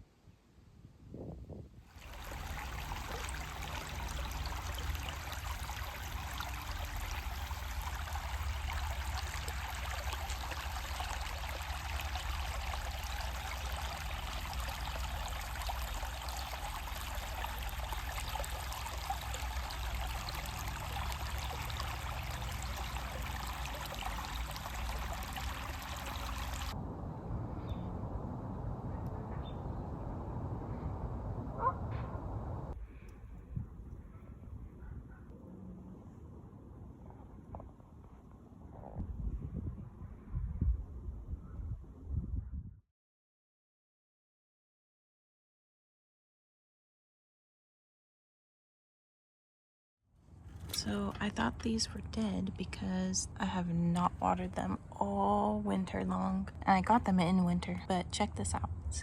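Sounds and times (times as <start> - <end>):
water rushing: 1.9 - 26.8.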